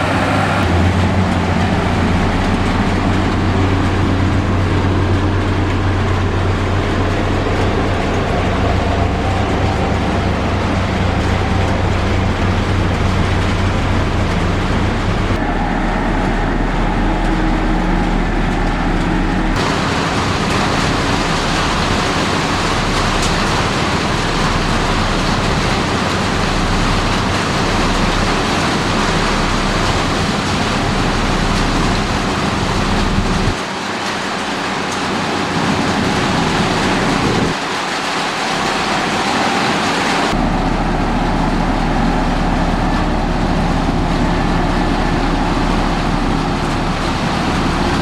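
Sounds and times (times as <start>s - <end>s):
heavy diesel machinery running: 0.0s - 48.0s.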